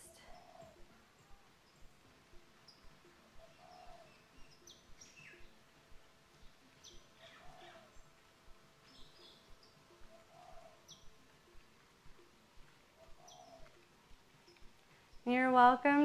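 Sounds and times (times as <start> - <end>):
birds chirping: 0.0 - 16.0
soft low cooing: 7.2 - 8.0, 10.1 - 10.9.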